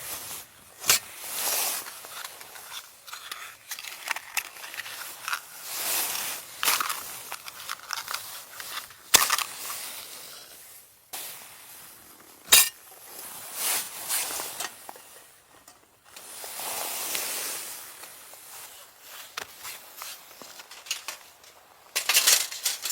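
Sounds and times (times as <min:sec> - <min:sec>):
rustling of handled things: 0:00.0 - 0:22.9
objects clicking and clinking: 0:06.1 - 0:09.8.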